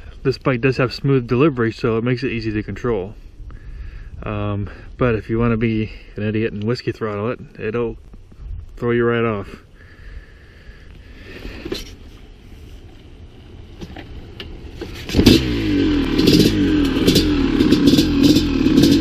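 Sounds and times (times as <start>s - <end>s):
dirt bike engine revving: 14.9s - 19.0s.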